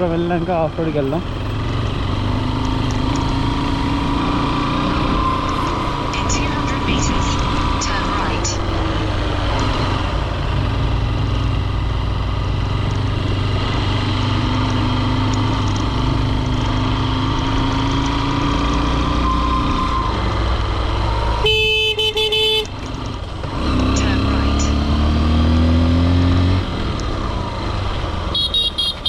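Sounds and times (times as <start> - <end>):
motorcycle engine running: 0.0 - 19.0
wind and road noise: 0.0 - 29.0
vehicle horn blasts: 21.4 - 22.7, 28.3 - 29.0.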